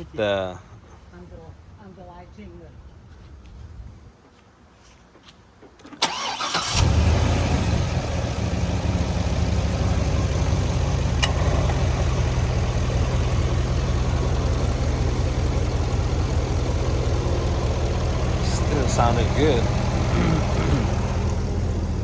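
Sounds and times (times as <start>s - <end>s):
car engine starting and idling: 5.8s - 22.0s.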